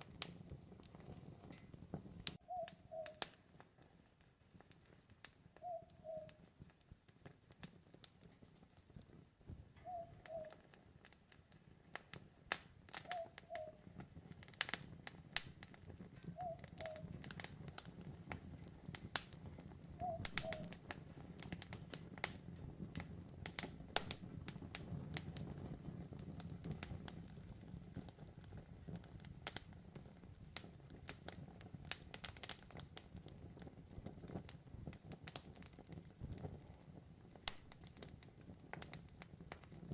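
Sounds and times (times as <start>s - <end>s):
campfire crackling and popping: 0.0s - 39.9s
low rumble of burning fire: 0.0s - 39.9s
owl hooting: 2.4s - 3.3s, 5.6s - 6.4s, 9.8s - 10.6s, 13.0s - 13.9s, 16.3s - 17.1s, 20.0s - 20.8s.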